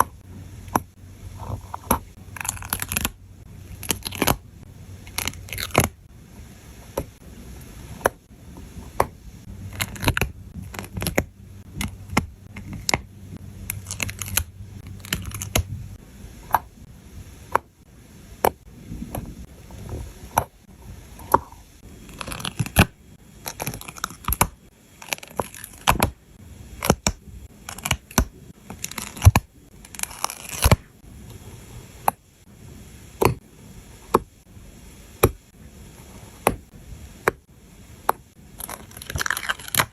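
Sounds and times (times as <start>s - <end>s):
faint low hum: 0.0s - 39.9s
backing paper peeling and tearing: 28.8s - 30.8s.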